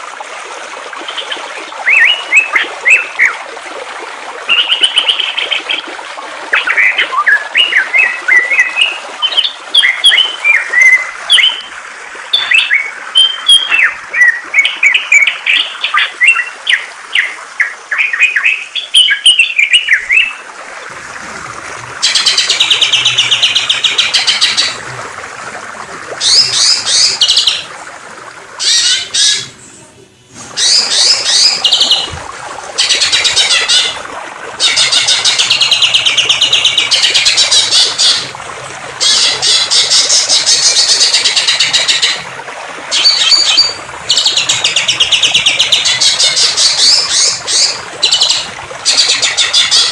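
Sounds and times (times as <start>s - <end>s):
running water: 0.0s - 49.9s
songbirds singing: 22.0s - 27.7s.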